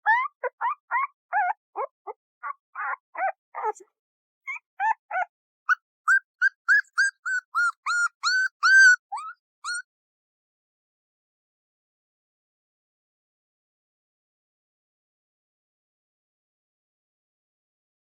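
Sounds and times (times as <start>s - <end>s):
puppy whimpering and yipping: 0.0s - 3.8s, 4.5s - 9.8s.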